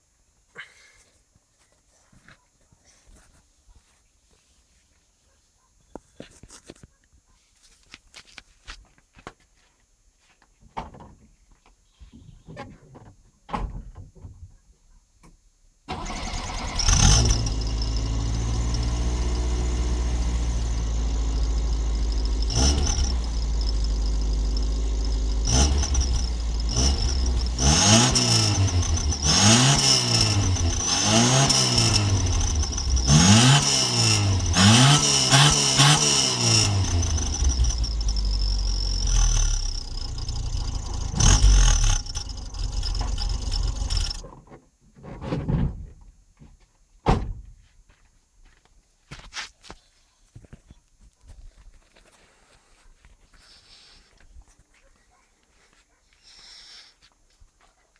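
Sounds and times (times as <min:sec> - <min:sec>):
car engine starting and revving: 0:15.9 - 0:44.2.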